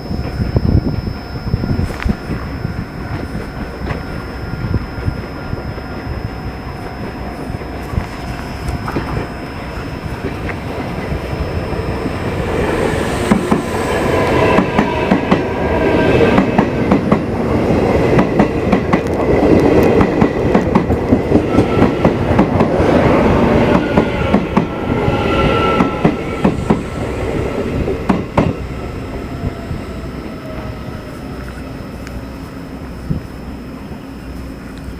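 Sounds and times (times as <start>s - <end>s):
thin whining tones: 0.0s - 34.9s
train wheels clicking over rail joints: 18.0s - 24.8s.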